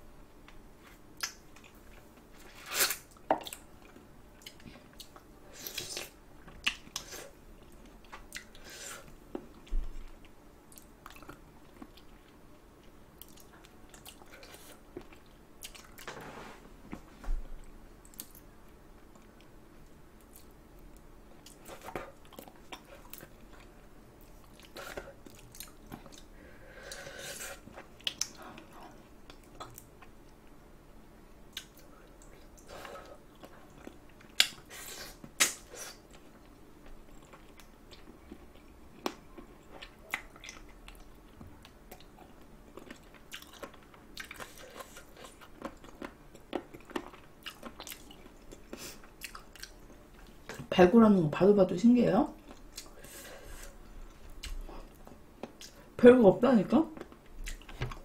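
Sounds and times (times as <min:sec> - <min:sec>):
chewing and gnawing: 0:09.4 - 0:16.1, 0:21.3 - 0:26.3, 0:31.5 - 0:34.7, 0:35.3 - 0:50.6, 0:57.0 - 0:58.0.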